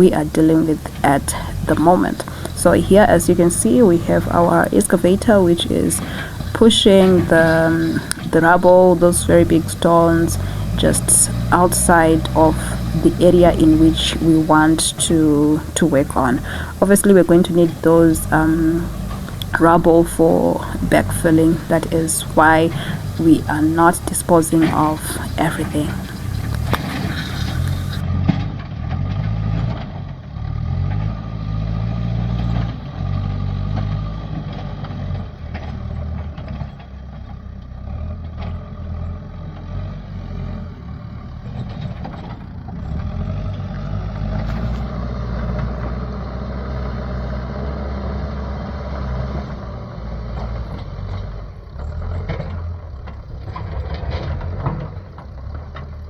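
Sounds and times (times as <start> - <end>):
excavator diesel engine running: 0.0 - 29.4, 30.1 - 56.0
rubble and stones being pushed: 0.2 - 28.5.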